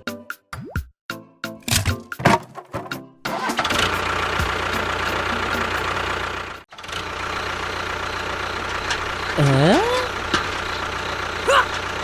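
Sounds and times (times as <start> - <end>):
engine-like running sound: 2.7 - 12.0.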